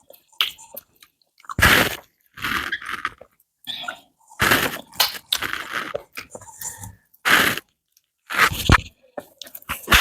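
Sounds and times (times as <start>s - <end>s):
chewing and wet mouth noises: 0.0s - 7.0s.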